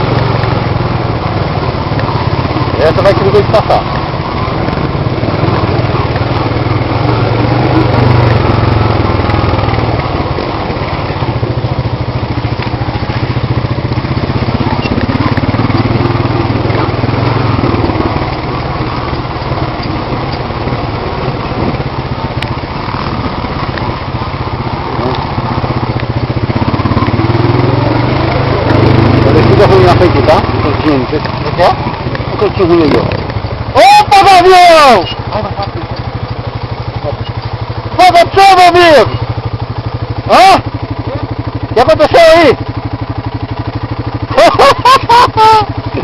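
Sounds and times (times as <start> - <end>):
off-road vehicle engine running: 0.0 - 46.0.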